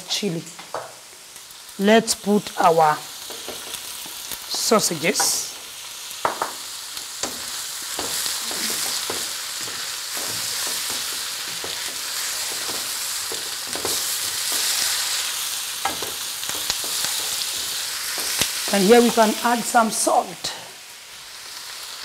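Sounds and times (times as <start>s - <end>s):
food sizzling in oil in a wok: 0.0s - 22.0s
wooden spoon scraping a pan: 7.2s - 19.4s.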